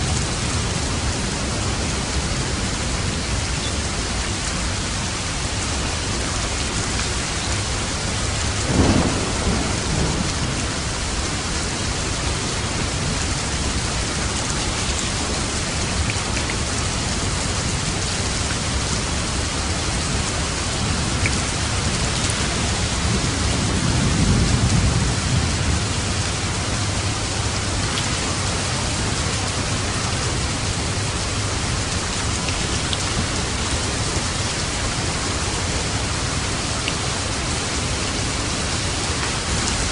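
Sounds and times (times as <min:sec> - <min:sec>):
steady rain falling: 0:00.0 - 0:39.9
thunder clap and rumble: 0:08.1 - 0:16.8, 0:18.6 - 0:39.9.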